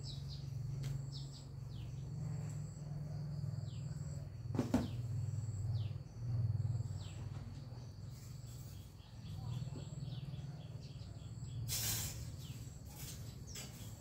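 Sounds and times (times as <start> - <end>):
bird chirping: 0.0 - 11.7
insect drone: 0.0 - 14.0
knock: 4.5 - 5.0.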